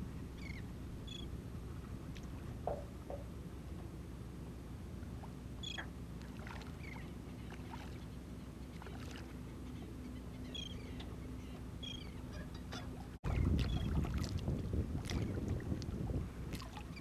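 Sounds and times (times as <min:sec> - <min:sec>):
faint steady hum: 0:00.0 - 0:17.0
wind and water rumble: 0:00.0 - 0:17.0
faint bird chirps: 0:05.6 - 0:05.9, 0:06.8 - 0:07.6.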